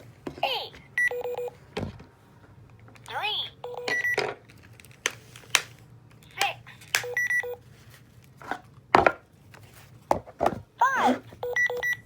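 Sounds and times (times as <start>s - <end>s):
electronic beeps in two pitches: 11.4s - 12.0s.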